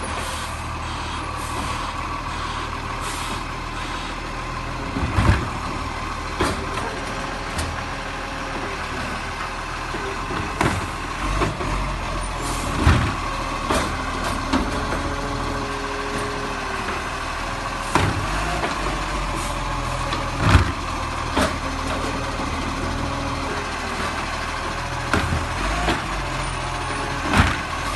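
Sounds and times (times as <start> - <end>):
garbage truck engine running: 0.0 - 27.9
sharp clunks and knocks: 6.3 - 6.9, 10.2 - 11.7, 12.7 - 15.0, 17.9 - 19.0, 20.1 - 22.1, 25.1 - 26.2, 27.2 - 27.9.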